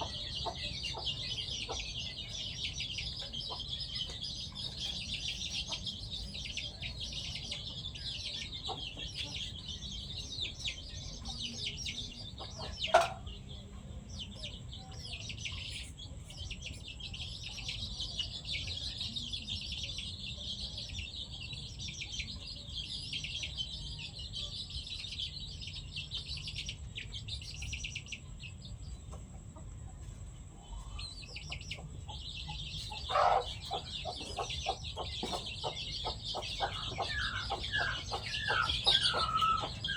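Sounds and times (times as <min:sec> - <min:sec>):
chickens clucking: 0:00.0 - 0:39.9
high chirping: 0:30.5 - 0:39.9.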